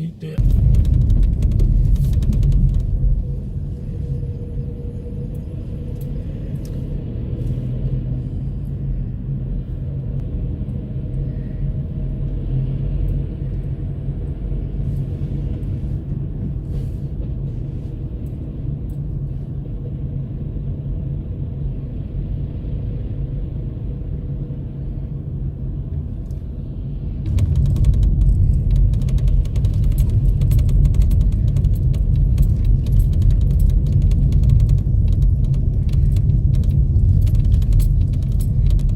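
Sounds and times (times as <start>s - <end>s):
car engine rumble: 0.0s - 38.9s
road noise: 0.0s - 38.9s
dense rattling: 0.4s - 4.3s, 27.3s - 38.9s.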